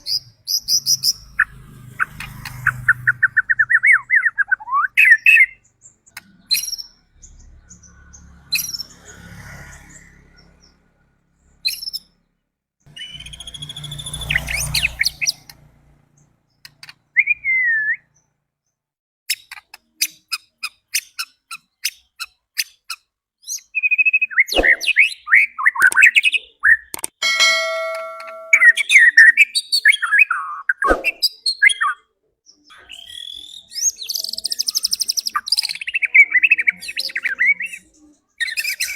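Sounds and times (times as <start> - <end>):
bird singing whistled phrases: 3.6 - 5.6, 13.0 - 14.8, 17.2 - 18.1, 32.7 - 38.9.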